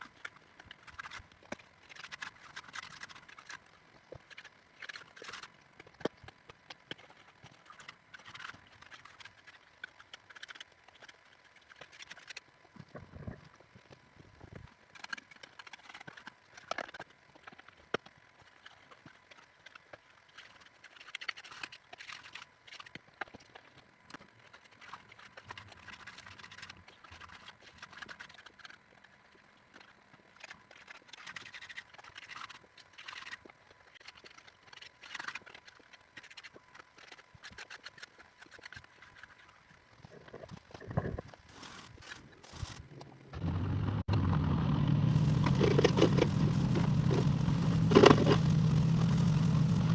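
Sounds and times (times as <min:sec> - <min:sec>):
low machine engine: 0:43.3 - 0:49.9
tools scraping soil and stones: 0:45.1 - 0:49.9.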